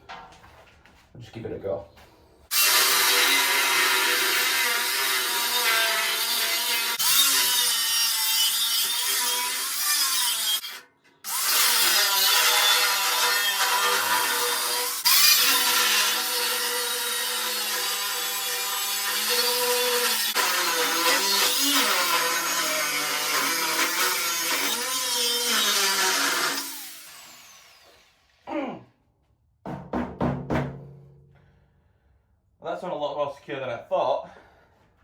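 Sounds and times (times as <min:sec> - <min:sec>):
angle grinder grinding metal: 0:02.5 - 0:28.4.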